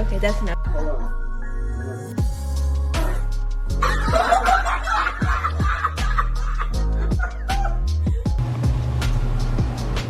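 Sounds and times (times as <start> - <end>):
electronic music with heavy bass: 1.3 - 10.0.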